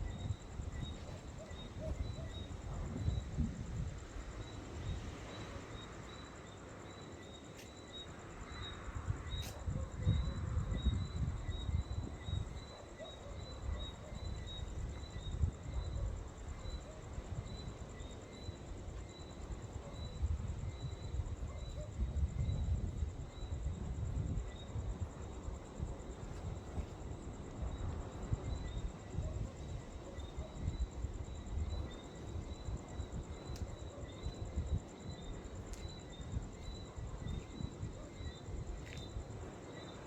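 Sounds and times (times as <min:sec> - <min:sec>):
wind buffeting microphone: 0:00.0 - 0:05.2, 0:08.9 - 0:12.7, 0:18.7 - 0:39.6
high insect chirp: 0:00.0 - 0:40.0.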